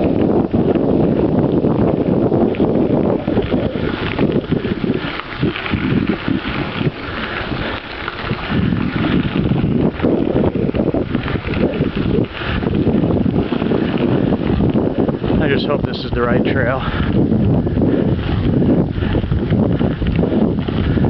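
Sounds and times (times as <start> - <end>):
bike rumbling and rattling on trail: 0.0 - 21.0
wind buffeting microphone: 0.0 - 21.0.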